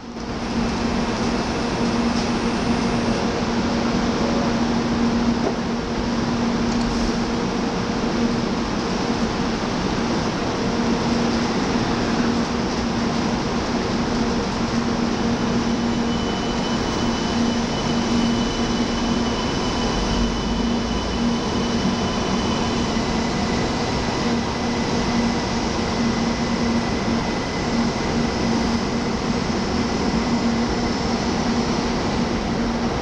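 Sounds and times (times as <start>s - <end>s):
train running past: 0.0s - 33.0s.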